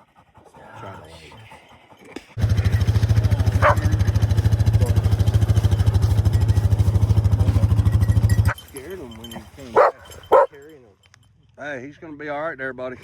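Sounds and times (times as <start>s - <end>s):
small engine idling: 2.4s - 10.5s.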